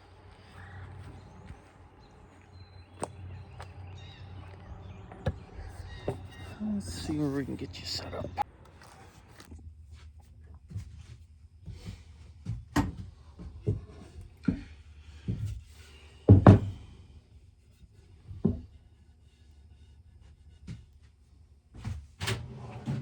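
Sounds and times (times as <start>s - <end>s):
knocks and thumps: 16.3s - 16.8s.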